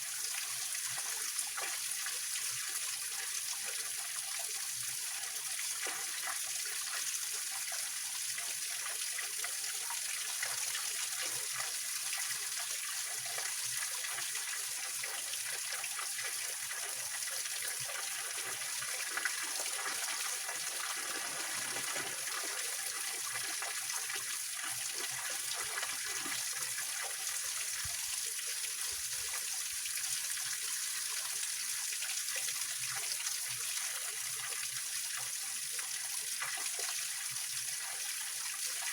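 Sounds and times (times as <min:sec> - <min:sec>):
stream splashing over rocks: 0:17.7 - 0:28.4.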